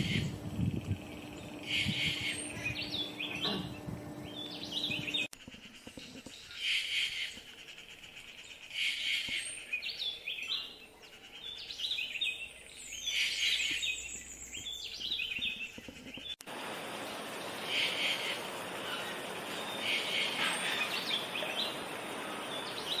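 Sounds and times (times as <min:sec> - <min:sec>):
jay calling: 0:01.6 - 0:03.8, 0:17.5 - 0:23.0
steady background hiss: 0:16.4 - 0:23.0.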